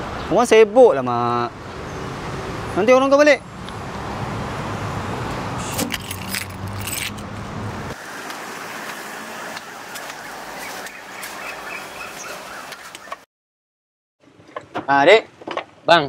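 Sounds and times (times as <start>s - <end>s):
street ambience: 0.0s - 13.2s
metallic jingling clicks: 5.7s - 7.3s.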